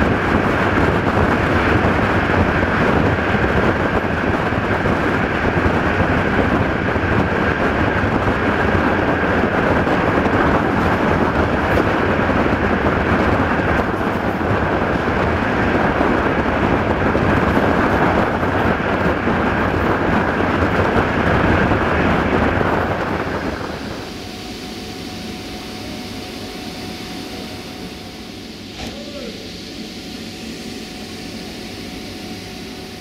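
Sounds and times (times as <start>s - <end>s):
wind striking microphone: 0.0s - 24.1s
train wheels rumbling on rails: 0.0s - 29.6s.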